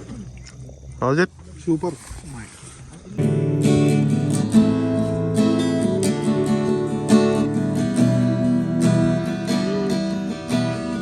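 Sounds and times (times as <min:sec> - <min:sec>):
strummed acoustic guitar: 0:03.2 - 0:11.0.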